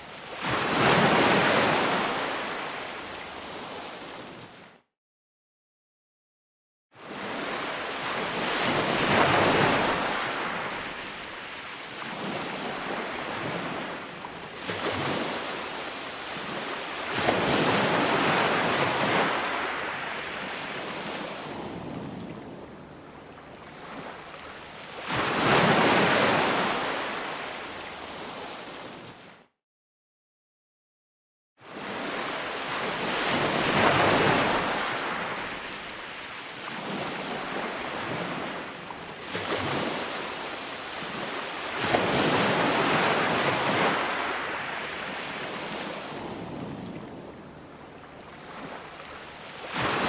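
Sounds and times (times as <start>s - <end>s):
ocean waves breaking: 0.1s - 4.7s, 7.0s - 29.4s, 31.7s - 50.0s
wind noise on microphone: 20.4s - 24.2s, 45.4s - 48.9s.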